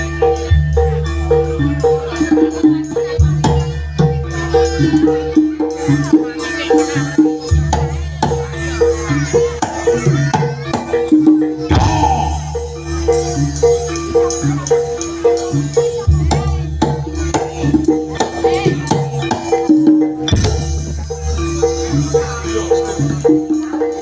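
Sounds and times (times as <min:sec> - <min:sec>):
drums: 0:00.0 - 0:24.0
gamelan music: 0:00.0 - 0:24.0
jingling percussion: 0:00.0 - 0:24.0
heavy percussion strokes: 0:11.6 - 0:14.4.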